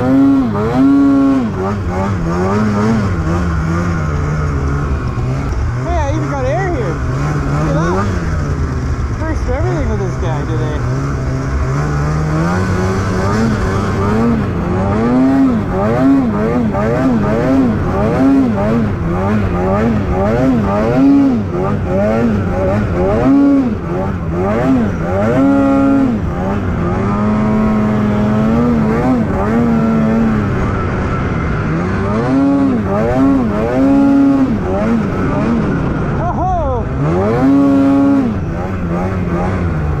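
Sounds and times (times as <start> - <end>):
snowmobile engine revving: 0.0 - 40.0.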